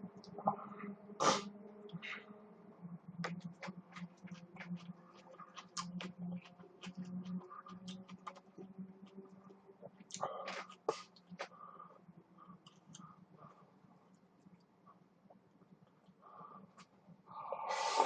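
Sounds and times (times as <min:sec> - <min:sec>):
faint low hum: 0:00.0 - 0:18.0
chewing smacks: 0:03.2 - 0:11.6.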